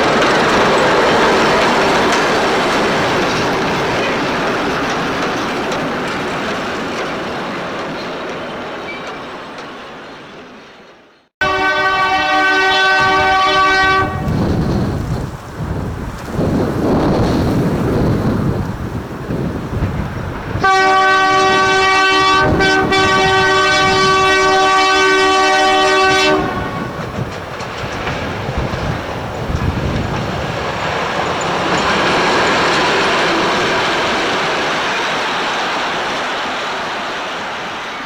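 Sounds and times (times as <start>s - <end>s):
wheels clickety-clack: 0.0s - 10.9s, 13.0s - 38.0s
locomotive rumbling: 0.0s - 38.0s
locomotive horn blast: 11.4s - 14.6s, 20.6s - 27.2s.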